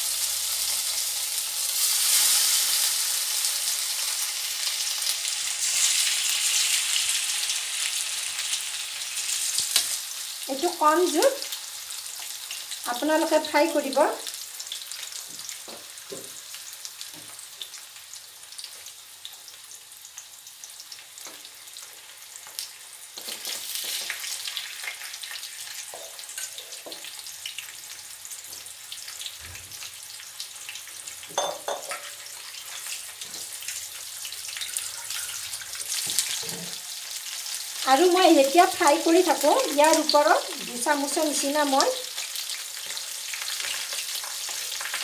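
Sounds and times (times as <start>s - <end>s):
chicken sizzling in hot oil: 0.0s - 45.0s.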